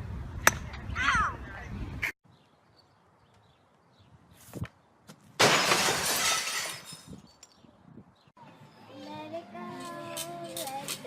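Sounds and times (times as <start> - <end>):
crash of something shattering: 5.4 - 7.1.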